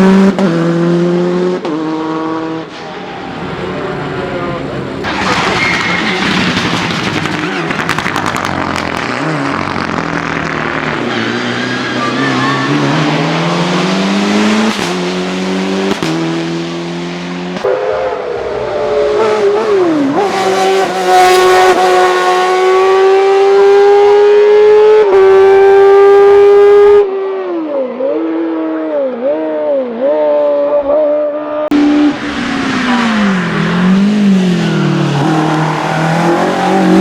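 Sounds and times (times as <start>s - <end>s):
race car engine accelerating: 0.0s - 27.5s, 28.2s - 37.0s.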